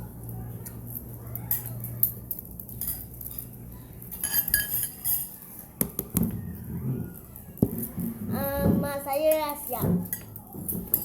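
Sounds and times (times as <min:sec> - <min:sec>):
cutlery clinking against bowl: 0:00.6 - 0:06.3, 0:09.3 - 0:11.0.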